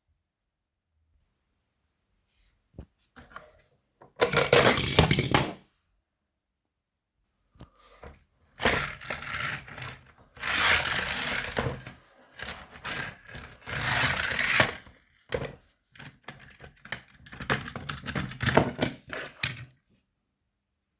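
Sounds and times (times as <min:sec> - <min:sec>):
toy train wheels clattering: 0:12.4 - 0:14.8.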